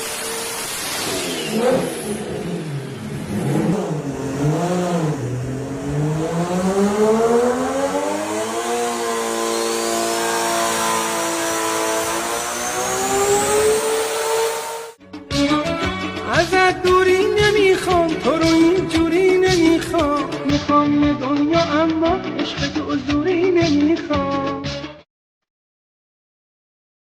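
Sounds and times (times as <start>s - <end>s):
engine revving: 0.0s - 15.0s.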